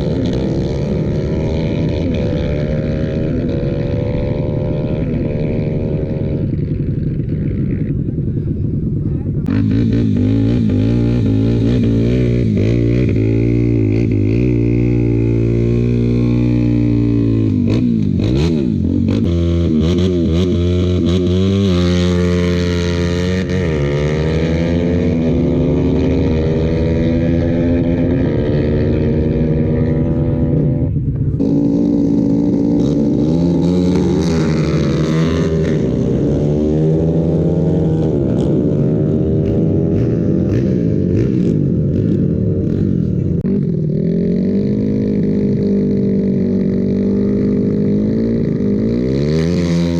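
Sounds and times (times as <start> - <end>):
motorcycle engines revving: 0.0 - 49.9.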